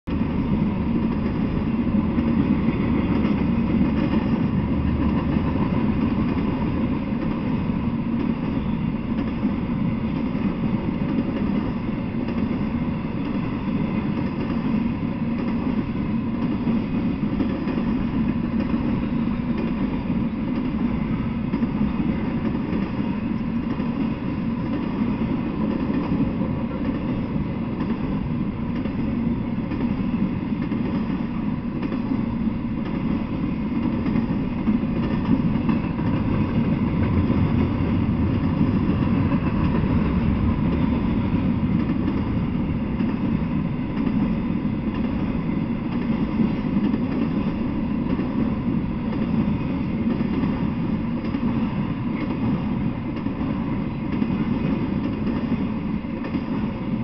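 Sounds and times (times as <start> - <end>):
freight train rumbling and rattling: 0.0 - 57.0.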